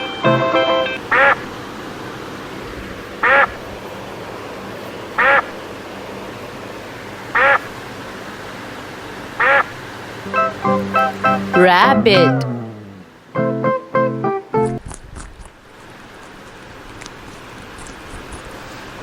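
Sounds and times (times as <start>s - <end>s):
steady background hiss: 0.0s - 19.0s
duck quacking: 1.1s - 1.5s, 3.2s - 3.6s, 5.2s - 5.6s, 7.3s - 7.8s, 9.4s - 12.7s.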